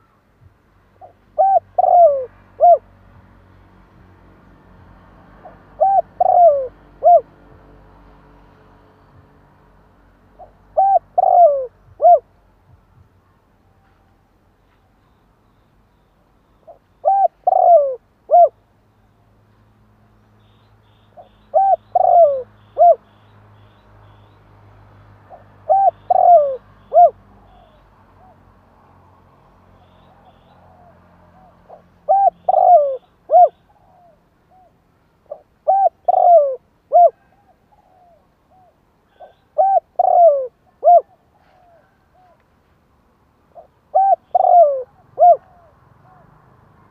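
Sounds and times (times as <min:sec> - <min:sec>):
dove cooing: 0:01.0 - 0:02.9, 0:05.4 - 0:07.4, 0:10.4 - 0:12.3, 0:16.6 - 0:18.6, 0:21.2 - 0:23.0, 0:25.3 - 0:28.4, 0:29.9 - 0:42.4, 0:43.6 - 0:46.4.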